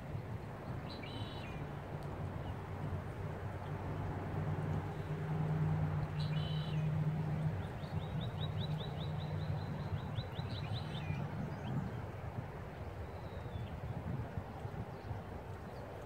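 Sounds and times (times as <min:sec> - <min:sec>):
songbird trilling: 0:00.9 - 0:01.6.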